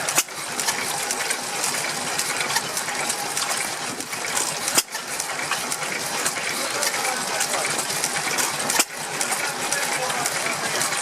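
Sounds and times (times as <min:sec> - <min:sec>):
stationary engine clattering: 0:00.0 - 0:11.0.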